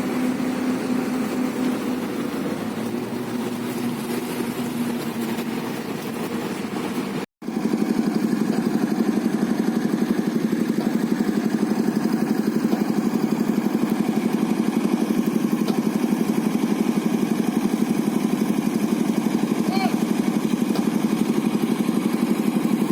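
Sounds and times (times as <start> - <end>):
engine running: 0.0 - 22.9.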